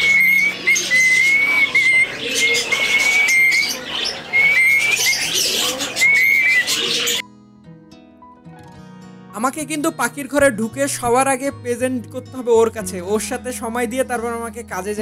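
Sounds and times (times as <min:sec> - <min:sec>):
pet bird whistling: 0:00.0 - 0:07.2
scratchy bird chatter: 0:00.0 - 0:07.2.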